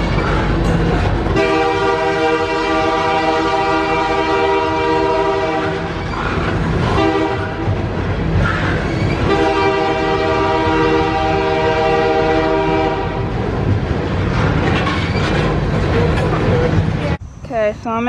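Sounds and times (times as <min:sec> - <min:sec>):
train rumbling: 0:00.0 - 0:18.0
locomotive horn blast: 0:01.3 - 0:06.1, 0:06.9 - 0:07.8, 0:09.2 - 0:13.3.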